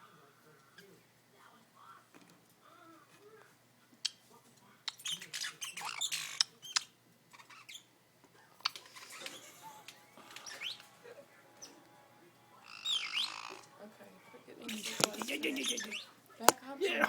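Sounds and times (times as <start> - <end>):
bird squawking: 10.3 - 11.0, 12.6 - 13.7, 14.8 - 16.2
sharp clicks: 14.9 - 15.4.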